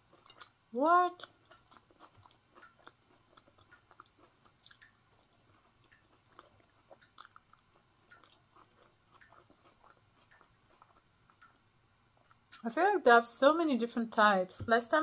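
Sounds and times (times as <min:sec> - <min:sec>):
chewing soft muffin: 0:00.0 - 0:12.7.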